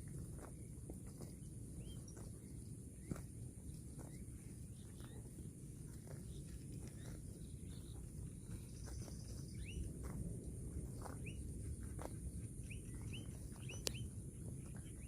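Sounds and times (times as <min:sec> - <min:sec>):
low outdoor rumble: 0:00.0 - 0:15.0
small bird chirping: 0:04.0 - 0:04.2, 0:06.1 - 0:09.9, 0:11.2 - 0:11.4, 0:12.6 - 0:15.0.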